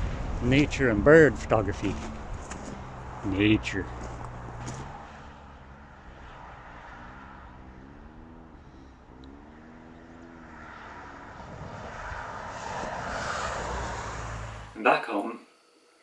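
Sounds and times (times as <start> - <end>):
wind rumbling on microphone: 0.0 - 3.2
faint engine drone: 0.0 - 6.0, 7.3 - 11.4.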